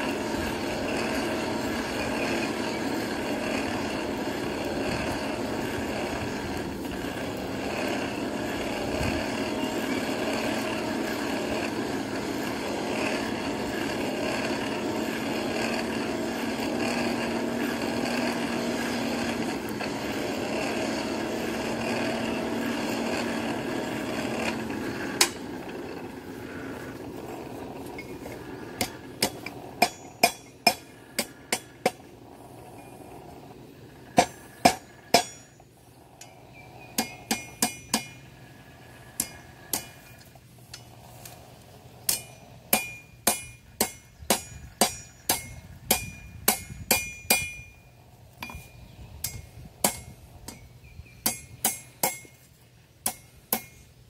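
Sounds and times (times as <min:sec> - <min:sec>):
steady motor drone: 0:00.0 - 0:54.0
hammer striking an anvil: 0:28.8 - 0:32.0, 0:34.2 - 0:35.6, 0:37.0 - 0:38.2, 0:42.1 - 0:47.8, 0:51.2 - 0:52.4, 0:53.0 - 0:53.8.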